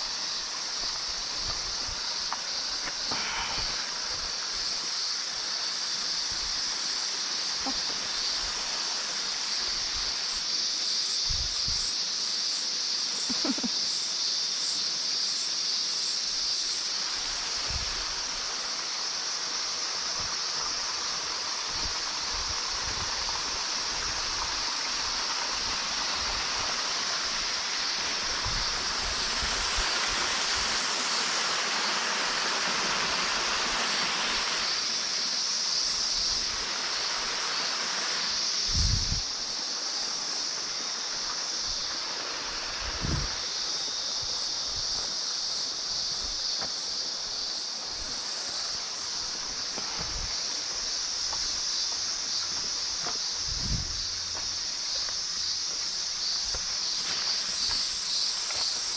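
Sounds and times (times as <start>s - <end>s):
high-pitched hiss: 0.0s - 58.9s
waterfall: 0.0s - 58.9s.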